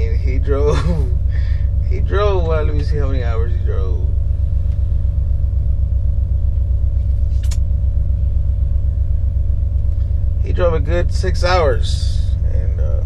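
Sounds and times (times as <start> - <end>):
diesel truck engine idling: 0.0 - 13.0
faint hum: 0.0 - 13.0
short click: 7.4 - 7.7.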